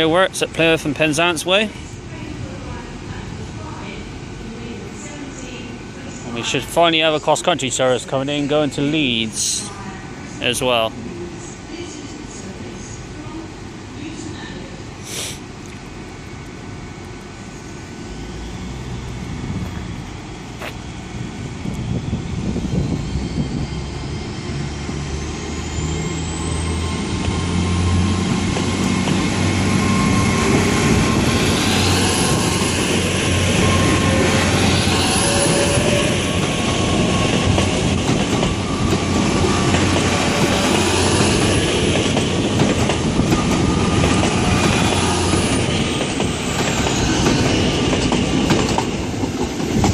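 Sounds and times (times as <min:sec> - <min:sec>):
rolling rail noise: 0:00.0 - 0:49.9
train diesel engines: 0:00.0 - 0:49.9
high traction whine: 0:17.5 - 0:48.4.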